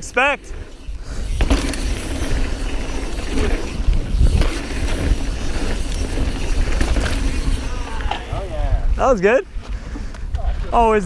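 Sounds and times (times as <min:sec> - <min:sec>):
bike tyre noise on dirt: 0:00.0 - 0:11.0
wind rumble on microphone: 0:00.5 - 0:11.0
bike knocks and rattles: 0:00.7 - 0:08.5.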